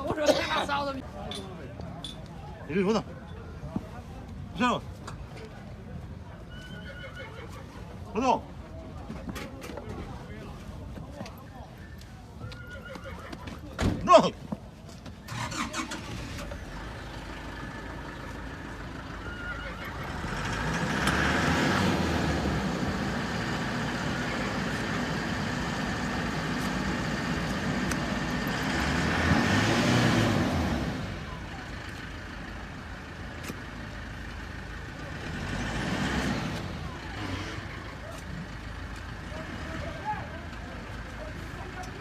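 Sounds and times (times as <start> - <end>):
vehicle engine running: 15.3 - 42.0.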